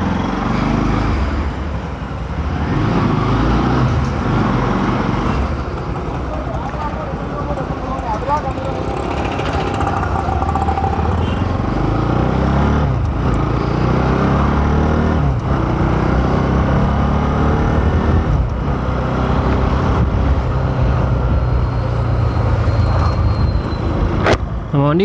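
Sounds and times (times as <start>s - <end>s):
wind and road noise: 0.0s - 25.0s
motorcycle engine accelerating: 7.2s - 23.2s.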